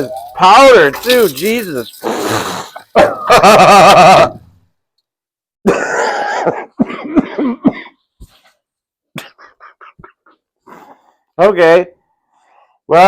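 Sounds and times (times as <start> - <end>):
man coughing: 5.6 - 8.0.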